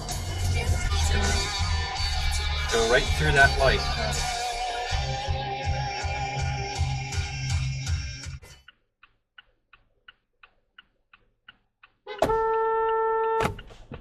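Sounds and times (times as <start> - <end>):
loud horn blast: 12.1 - 13.6.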